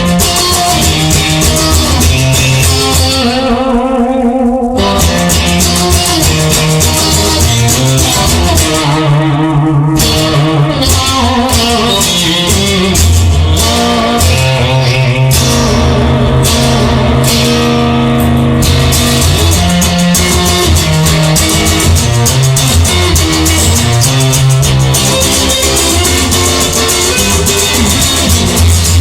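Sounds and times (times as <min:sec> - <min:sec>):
instrumental rock music: 0:00.0 - 0:29.0.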